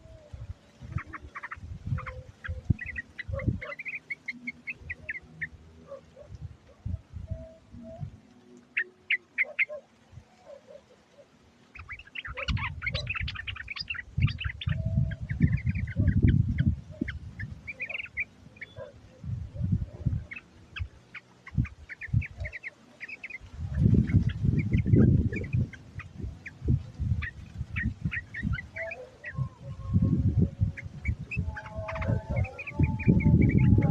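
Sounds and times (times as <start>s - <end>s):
birds chattering chirps: 0.0s - 33.9s.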